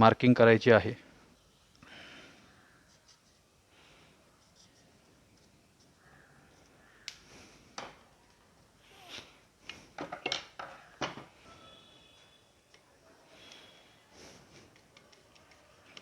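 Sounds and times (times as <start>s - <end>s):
tools clicking and knocking: 9.7s - 11.3s, 14.7s - 16.0s.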